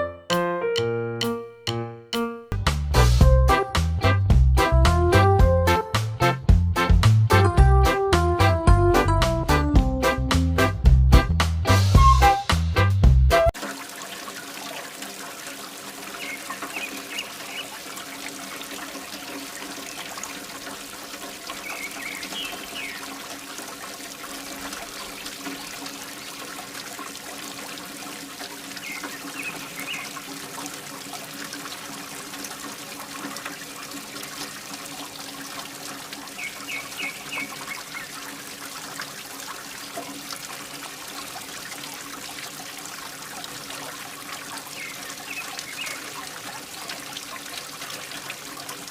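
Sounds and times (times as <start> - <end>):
short high chirps: 0.0 - 2.6
water pouring and trickling: 13.5 - 48.9.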